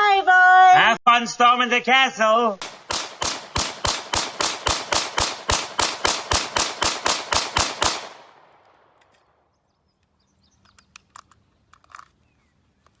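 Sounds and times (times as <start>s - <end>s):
rapid gunshots: 2.6s - 9.0s
faint small clicks: 10.0s - 13.0s.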